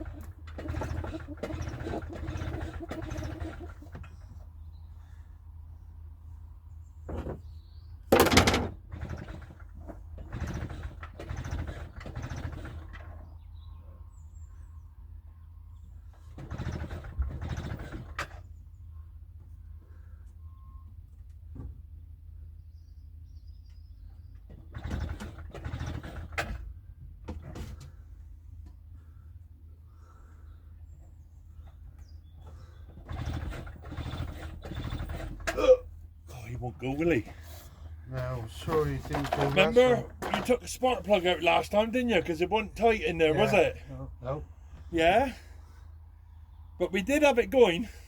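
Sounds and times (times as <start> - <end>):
generator recoil starter yanks: 0.0 - 4.5, 7.1 - 13.5, 16.0 - 18.6, 23.7 - 28.9, 31.1 - 43.9
engine turning over: 0.0 - 4.7, 8.1 - 13.7, 16.1 - 18.6, 24.5 - 28.0, 32.4 - 45.8
generator pull cord yanked: 8.1 - 13.2, 38.6 - 41.2
rattling and scraping: 8.1 - 13.3, 24.5 - 28.0, 31.6 - 43.9.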